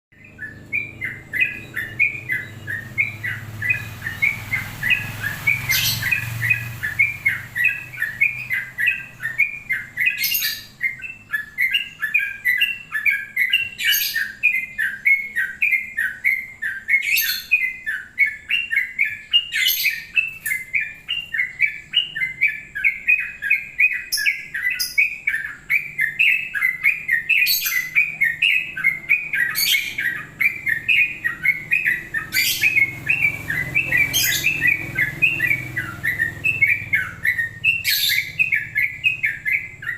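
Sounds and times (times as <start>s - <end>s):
bird singing rapid chattering notes: 0.1s - 39.9s.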